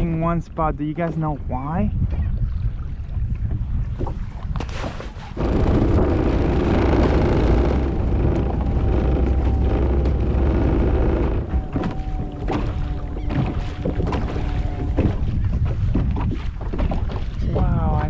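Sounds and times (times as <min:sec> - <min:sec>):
water noise: 0:00.0 - 0:18.0
wind: 0:00.0 - 0:18.0
jet kayak engine running: 0:05.3 - 0:15.6.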